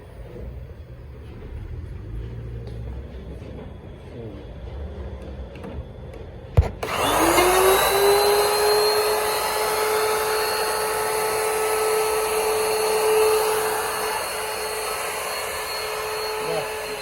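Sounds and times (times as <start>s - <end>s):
router motor whining: 6.6s - 17.0s.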